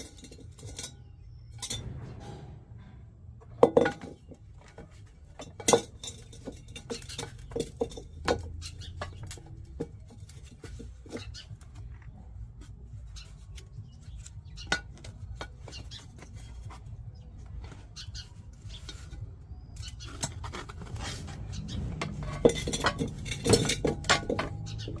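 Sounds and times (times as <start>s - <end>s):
washing machine door parts clattering: 0.0s - 11.2s, 19.8s - 25.0s
low steady hum: 0.0s - 25.0s.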